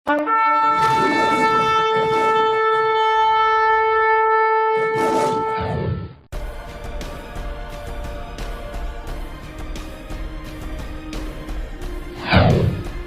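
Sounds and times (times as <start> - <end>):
long horn-like blast: 0.1 - 6.1.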